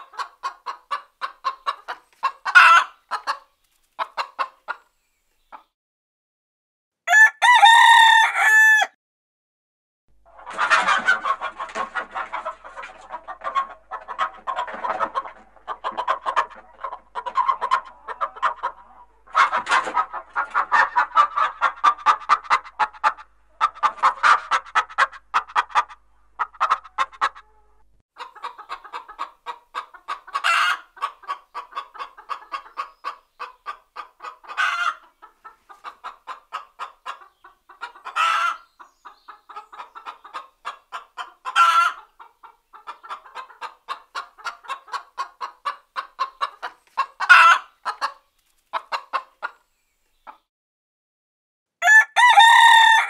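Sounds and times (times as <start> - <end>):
hens clucking: 0.0 - 5.7, 10.2 - 50.5
hen drawn-out calls: 42.8 - 48.1.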